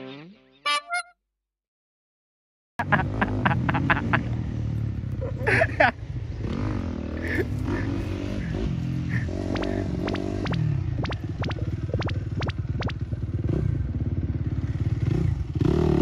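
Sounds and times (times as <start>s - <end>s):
motocross bike engine running: 6.9s - 16.0s
sharp clicks: 9.5s - 13.1s.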